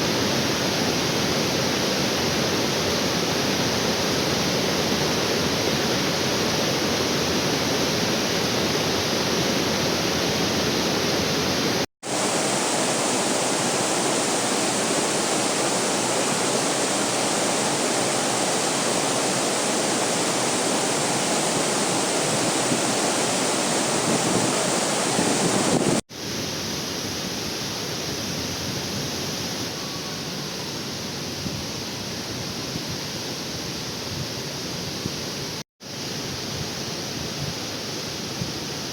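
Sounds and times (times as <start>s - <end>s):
waterfall rushing: 0.0s - 31.1s.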